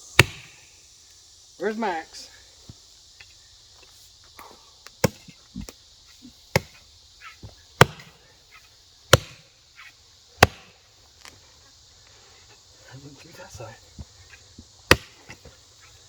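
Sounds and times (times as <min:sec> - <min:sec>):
mattock striking tree root: 0:00.2 - 0:00.6, 0:05.0 - 0:05.8, 0:06.5 - 0:06.8, 0:07.8 - 0:08.2, 0:09.1 - 0:09.5, 0:10.4 - 0:10.8, 0:14.6 - 0:15.6.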